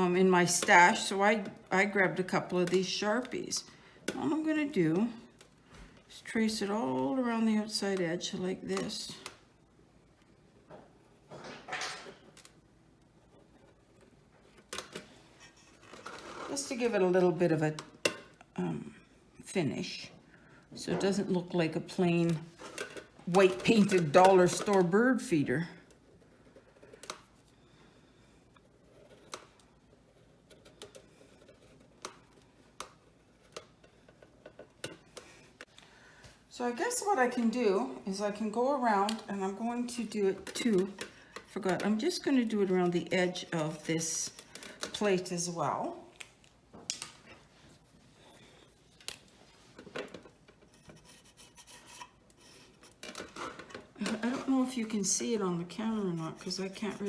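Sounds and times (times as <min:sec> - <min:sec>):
marker scratching on plate: 0:50.7 - 0:52.8.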